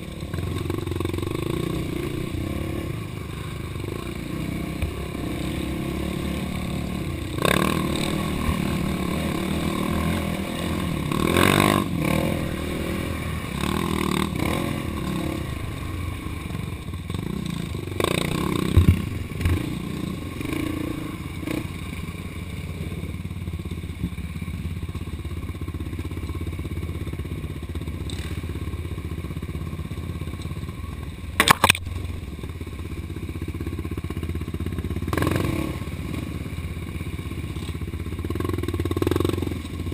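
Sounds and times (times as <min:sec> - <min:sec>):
off-road vehicle engine revving: 0:00.0 - 0:16.5, 0:17.1 - 0:21.9, 0:35.1 - 0:36.5
vehicle clattering over rough ground: 0:17.1 - 0:19.8.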